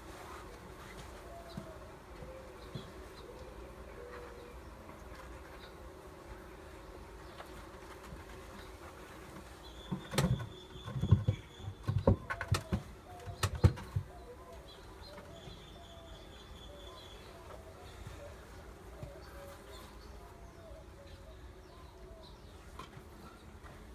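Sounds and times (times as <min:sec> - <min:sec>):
wooden hive parts knocking: 0:09.9 - 0:14.2.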